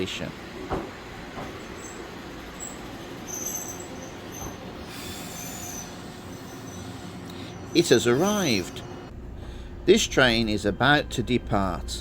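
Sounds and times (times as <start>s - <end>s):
train rumbling: 0.0s - 12.0s
high brake squeals: 1.6s - 9.1s.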